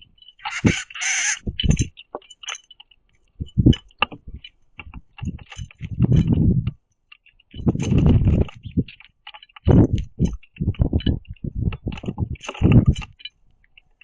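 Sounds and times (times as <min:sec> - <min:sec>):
birds pecking on wood: 0:00.0 - 0:14.0
wings flapping: 0:00.4 - 0:01.8.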